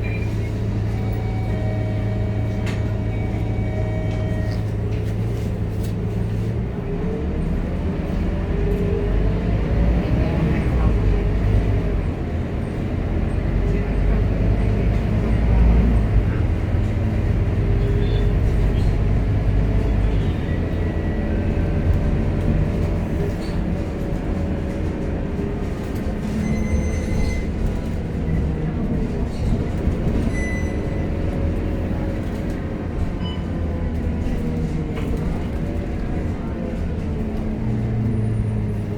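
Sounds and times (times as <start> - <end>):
bus engine rumbling: 0.0 - 38.9.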